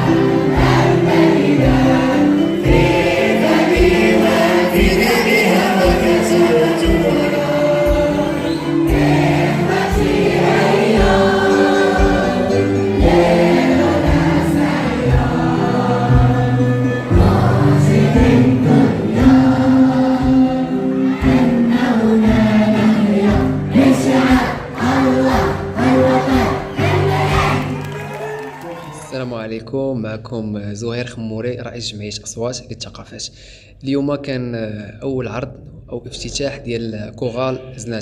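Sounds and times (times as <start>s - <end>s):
youth choir singing: 0.0s - 28.1s
musical accompaniment with steady beat: 0.0s - 28.3s.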